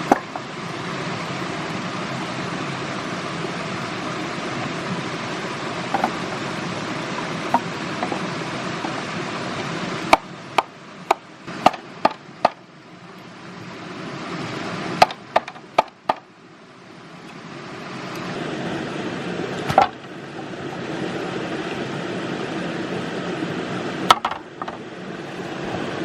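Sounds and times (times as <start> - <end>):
tool knocking on wood: 5.9 - 6.2, 15.0 - 16.2.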